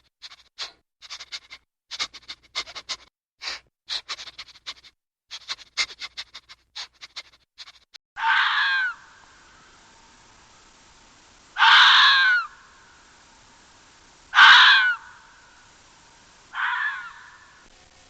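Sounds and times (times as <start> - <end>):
loud animal call: 8.2 - 9.7, 11.6 - 13.0, 14.3 - 15.6, 16.5 - 17.7.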